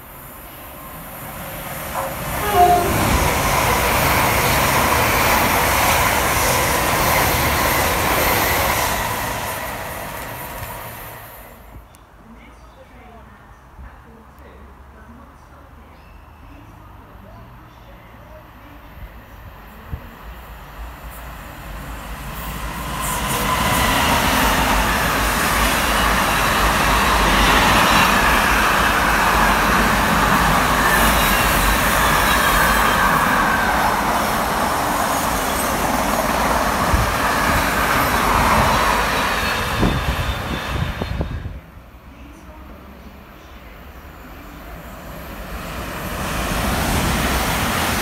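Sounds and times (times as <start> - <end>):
freight train wheels rumbling: 1.2 - 11.4, 19.9 - 41.8, 44.2 - 48.0.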